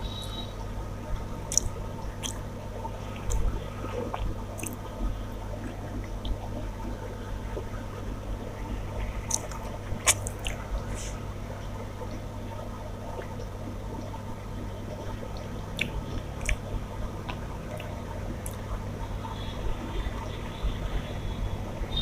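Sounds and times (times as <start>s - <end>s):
wet squishing of food: 1.1s - 7.8s, 8.6s - 18.9s
person chewing: 1.5s - 2.4s, 3.1s - 4.8s, 9.2s - 11.2s, 15.8s - 16.6s.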